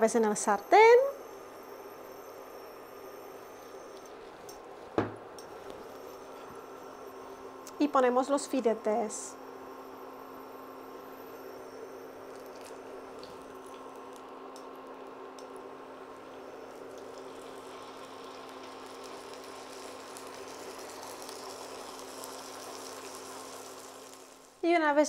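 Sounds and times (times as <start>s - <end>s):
steady hum: 0.0s - 22.8s
fish sizzling in oil: 9.7s - 24.6s.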